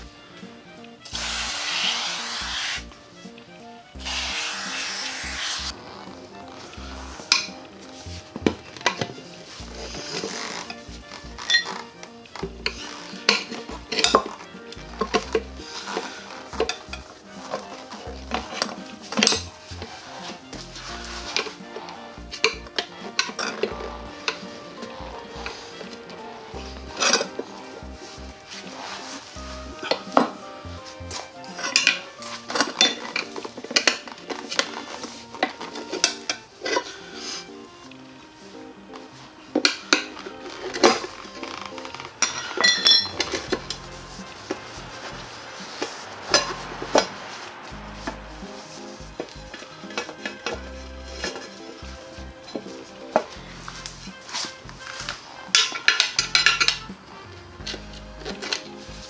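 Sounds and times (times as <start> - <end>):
background music: 0.0 - 59.0
hand tools clinking on metal: 5.9 - 37.4, 39.0 - 44.7, 55.4 - 57.0
metal tools clinking: 39.6 - 44.5, 55.5 - 56.9.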